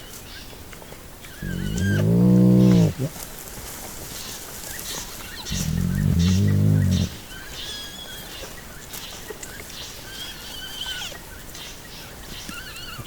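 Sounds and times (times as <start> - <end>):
deep growl: 1.4 - 3.2, 5.5 - 7.2.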